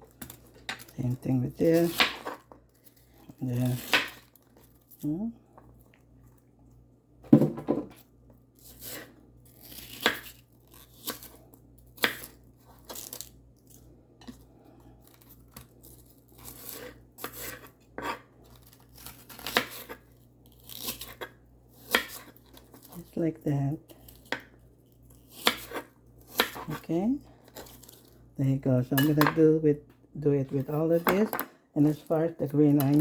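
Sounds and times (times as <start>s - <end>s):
knife cutting crunchy vegetable: 1.7s - 5.0s, 8.6s - 14.4s, 15.0s - 23.1s, 23.9s - 26.8s, 27.4s - 28.2s.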